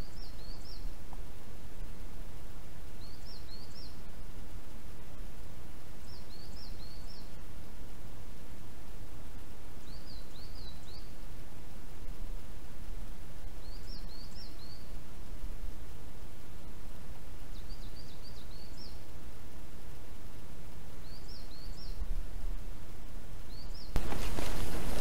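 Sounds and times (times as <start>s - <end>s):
songbird singing: 0.0s - 2.0s, 2.8s - 4.5s, 5.8s - 7.5s, 9.7s - 11.4s, 13.4s - 15.8s, 16.5s - 19.4s, 20.2s - 22.6s, 23.4s - 25.0s
low background rush of woods: 0.0s - 25.0s.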